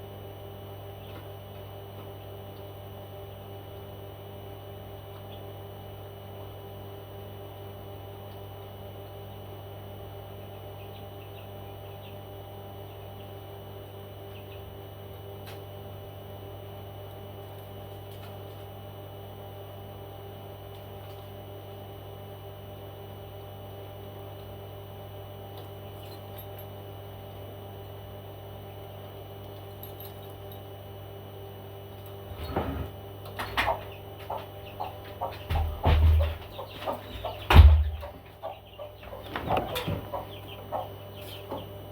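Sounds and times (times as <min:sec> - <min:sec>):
low electrical hum: 0:00.0 - 0:41.9
small bird chirps: 0:38.4 - 0:41.8.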